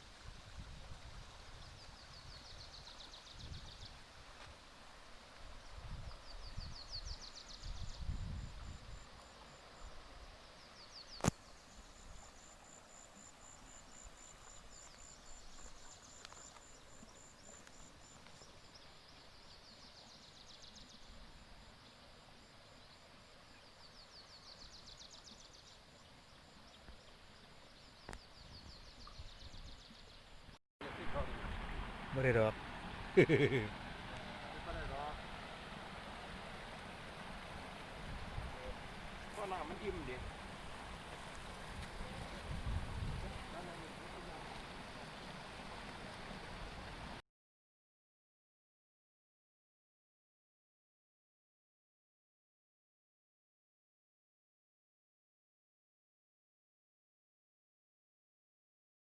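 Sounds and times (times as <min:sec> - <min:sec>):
faint steady hiss: 0:00.0 - 0:47.2
insects chirping: 0:08.2 - 0:19.4
sharp click: 0:11.2 - 0:11.4.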